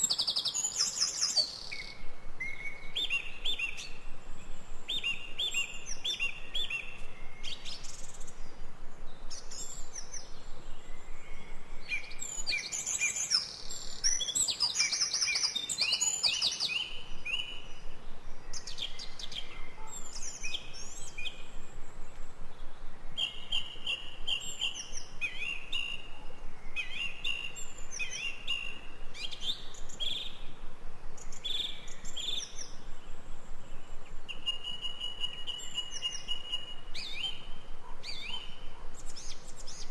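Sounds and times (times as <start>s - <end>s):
faint background hiss: 0.0s - 39.9s.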